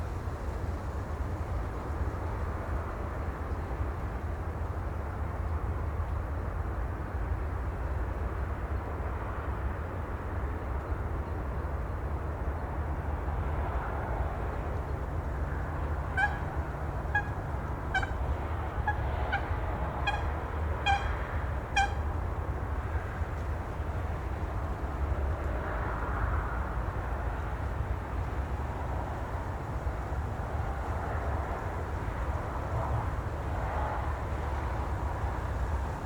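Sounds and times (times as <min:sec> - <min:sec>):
wind: 0:00.0 - 0:36.0
bird calling: 0:15.8 - 0:22.2.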